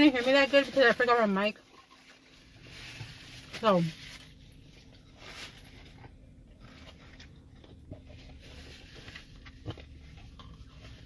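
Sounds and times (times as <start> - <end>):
low steady hum: 0.0 - 11.0
soft chewing: 4.6 - 11.0.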